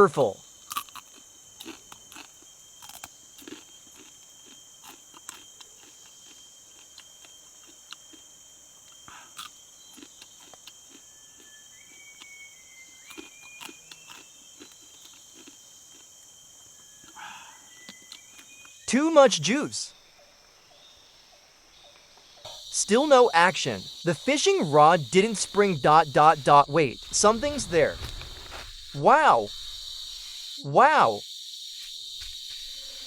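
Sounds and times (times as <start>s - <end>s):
high insect drone: 0.0s - 33.0s
person chewing crab: 0.7s - 8.3s, 8.9s - 11.5s, 13.1s - 16.2s.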